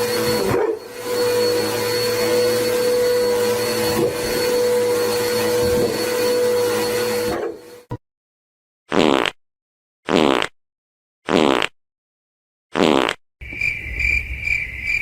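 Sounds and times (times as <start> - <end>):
small electric motor whine: 0.0 - 7.9.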